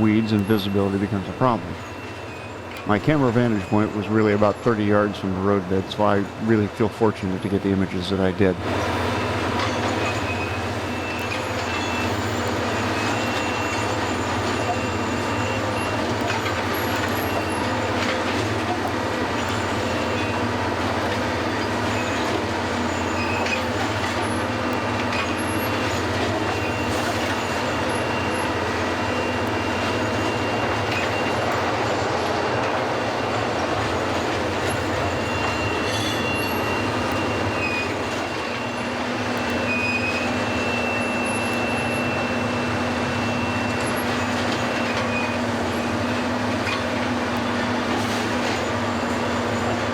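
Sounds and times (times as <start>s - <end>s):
high-pitched squeal: 0.0s - 7.8s, 21.4s - 45.4s.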